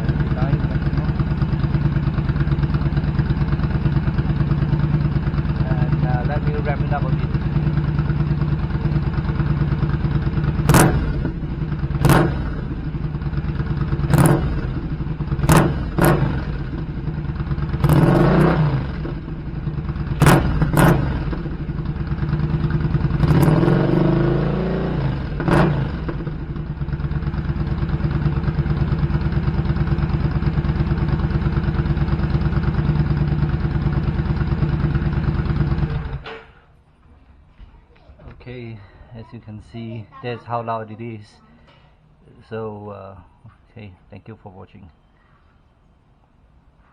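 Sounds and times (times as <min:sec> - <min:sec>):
motorcycle engine idling and revving: 0:00.0 - 0:36.8.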